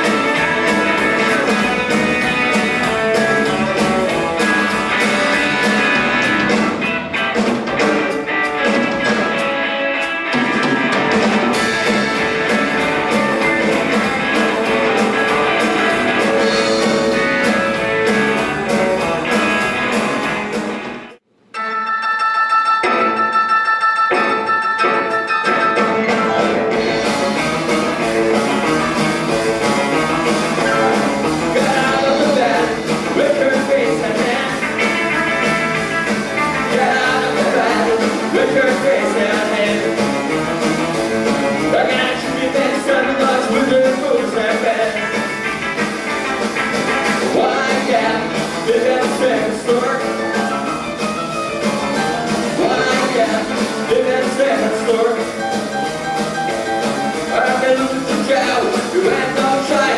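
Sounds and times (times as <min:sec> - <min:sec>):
drums: 0:00.0 - 0:21.6, 0:24.1 - 0:59.9
keyboard chords: 0:00.0 - 0:43.4, 0:44.4 - 0:59.9
guitar: 0:00.0 - 0:59.9
rock band playing live: 0:00.0 - 0:59.9
person singing: 0:30.6 - 0:35.4, 0:36.6 - 0:40.1, 0:41.6 - 0:45.3, 0:47.2 - 0:50.6, 0:52.4 - 0:55.6, 0:56.5 - 0:59.9.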